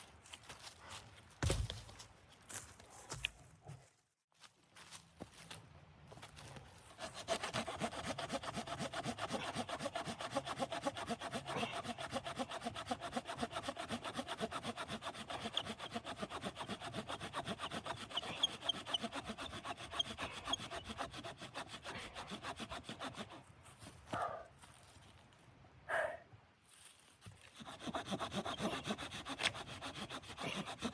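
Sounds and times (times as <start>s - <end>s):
hand saw cutting wood: 6.9s - 23.5s, 27.4s - 30.9s.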